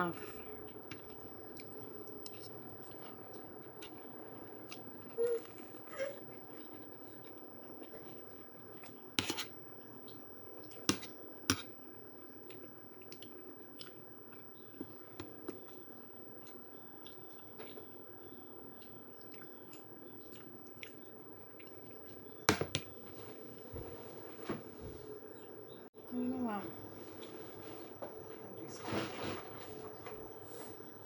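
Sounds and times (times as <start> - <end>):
steady low hum: 0.0 - 31.0
person chewing food: 0.7 - 22.8.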